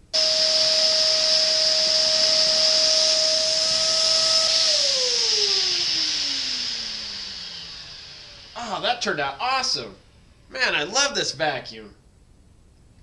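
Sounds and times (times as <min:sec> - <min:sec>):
vacuum cleaner motor whining: 0:00.0 - 0:09.9.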